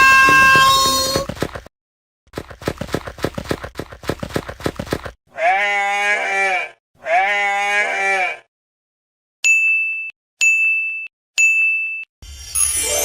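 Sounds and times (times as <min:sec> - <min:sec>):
sheep or goat bleating: 0:05.3 - 0:08.5.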